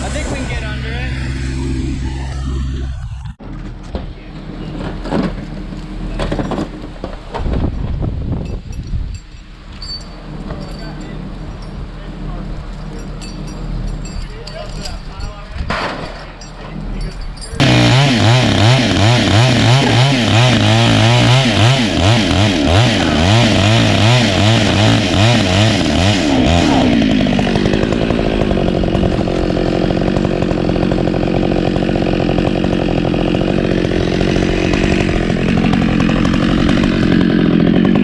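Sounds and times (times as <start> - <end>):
chainsaw cutting wood: 17.6 - 38.0.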